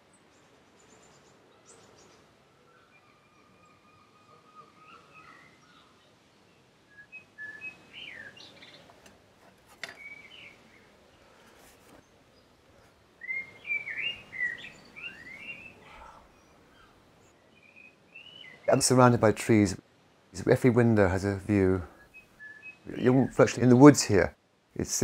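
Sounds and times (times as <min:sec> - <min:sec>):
songbird whistling: 0:06.9 - 0:08.8, 0:10.0 - 0:10.6, 0:13.2 - 0:16.2, 0:22.0 - 0:23.0.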